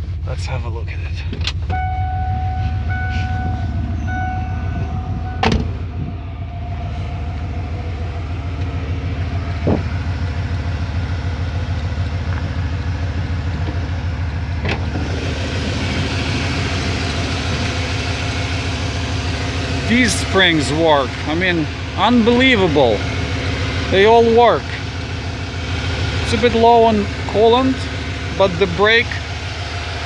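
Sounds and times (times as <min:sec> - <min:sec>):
truck engine idling: 0:00.0 - 0:30.0
chime beeping: 0:01.7 - 0:07.3
door shutting: 0:03.0 - 0:06.1.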